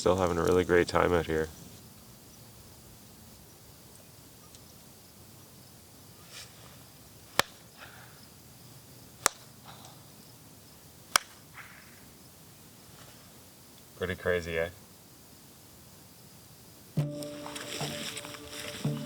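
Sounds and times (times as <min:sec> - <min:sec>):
soft rustle: 0:06.0 - 0:07.8, 0:11.2 - 0:13.9, 0:17.2 - 0:19.0.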